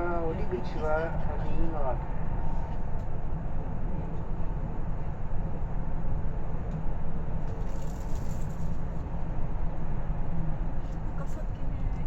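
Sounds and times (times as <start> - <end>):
moving train rumble from inside: 0.0 - 12.0.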